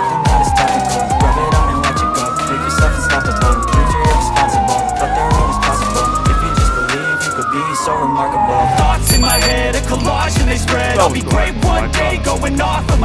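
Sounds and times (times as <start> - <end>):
music beat with drums and bass: 0.0 - 7.4, 8.8 - 13.0
wailing siren tone: 0.0 - 9.6.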